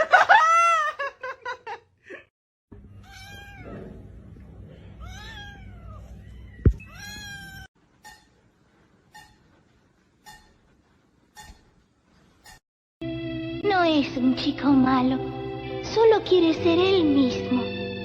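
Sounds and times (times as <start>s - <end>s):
cat meowing: 2.9s - 4.0s, 5.0s - 7.7s.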